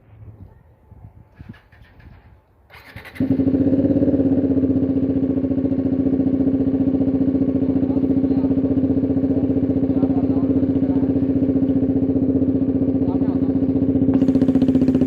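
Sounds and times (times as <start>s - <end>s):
motorcycle engine idling with exhaust popping: 1.4s - 15.0s.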